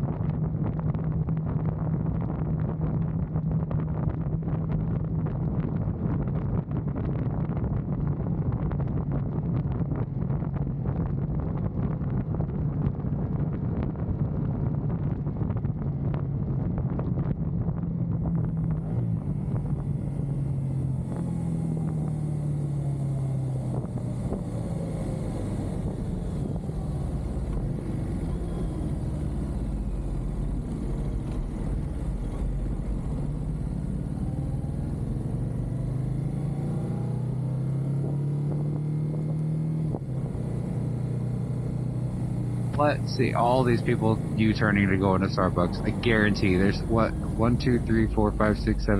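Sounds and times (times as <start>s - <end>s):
wind buffeting microphone: 0.0s - 36.2s.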